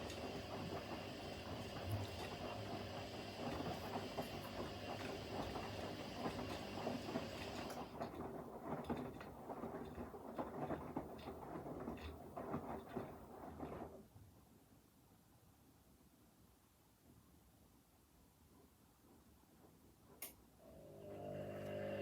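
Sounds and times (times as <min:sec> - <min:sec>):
laundry tumbling in drum: 0:00.0 - 0:14.2
motor hum: 0:20.7 - 0:22.0.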